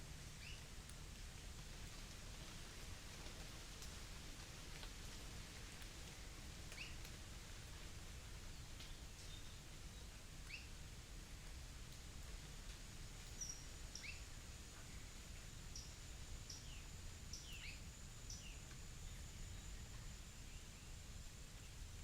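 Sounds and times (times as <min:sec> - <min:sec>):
small birds chirping: 0:13.3 - 0:20.8.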